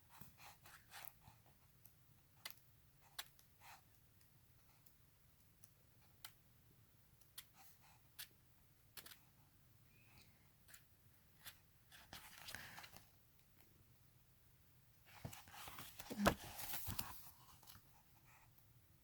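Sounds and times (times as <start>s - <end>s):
faint clicks of pages turning: 8.9s - 9.3s, 10.2s - 13.7s, 15.1s - 17.9s.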